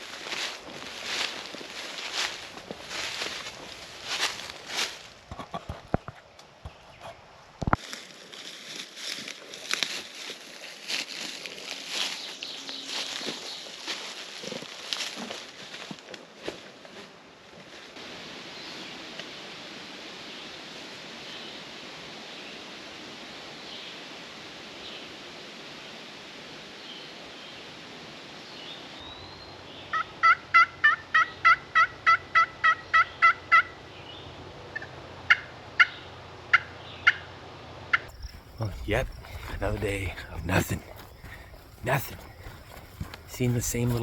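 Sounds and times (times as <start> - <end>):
steady outdoor hiss: 0.0 - 44.0
wild turkey yelps: 29.9 - 33.8, 34.8 - 37.3.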